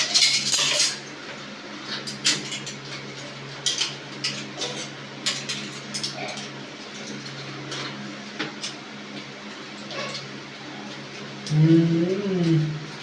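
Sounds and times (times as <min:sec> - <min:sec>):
dishes and cutlery clinking: 0:00.0 - 0:01.0, 0:01.9 - 0:08.8
steady low hum: 0:10.6 - 0:13.0.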